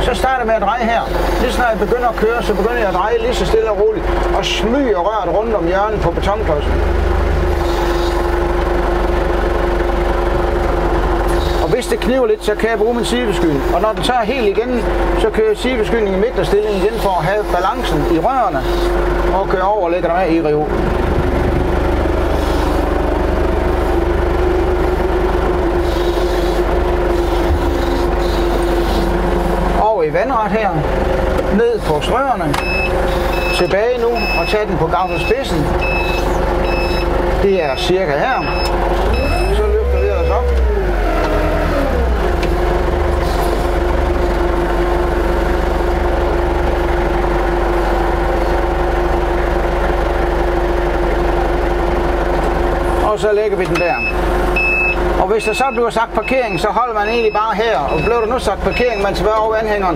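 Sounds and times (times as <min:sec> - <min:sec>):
forklift drive whine: 0:00.0 - 0:59.9
low rumble: 0:20.0 - 0:25.8.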